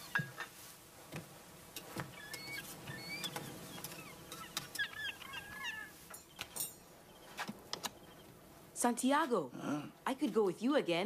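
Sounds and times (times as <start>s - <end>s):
birds chirping: 2.0s - 8.5s.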